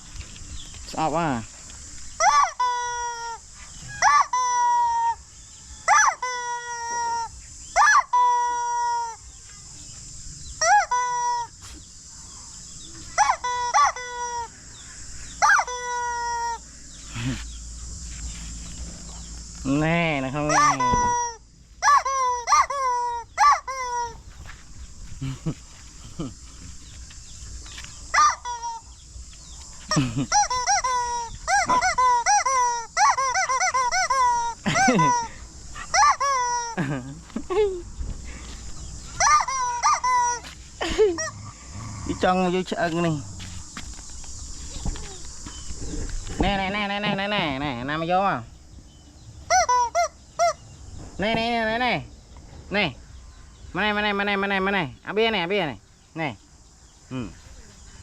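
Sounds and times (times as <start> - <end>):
rubber chicken toy squealing: 2.2 - 5.2, 5.8 - 9.2, 10.6 - 11.5, 13.2 - 14.5, 15.4 - 16.6, 20.5 - 24.2, 28.1 - 28.9, 30.3 - 35.3, 35.9 - 36.8, 39.2 - 40.4, 49.5 - 50.6
geese honking: 20.4 - 24.2.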